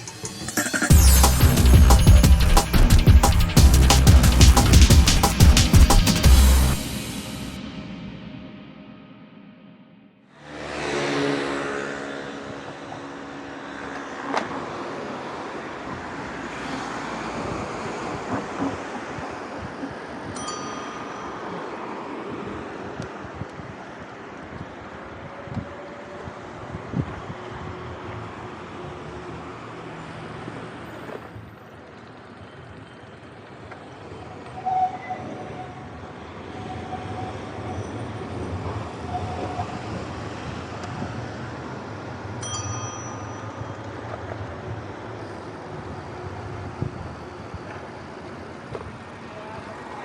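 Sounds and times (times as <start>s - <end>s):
bell-like ding: 0.0s - 3.6s, 20.4s - 22.4s, 42.4s - 44.1s
street traffic rumble: 10.4s - 50.0s.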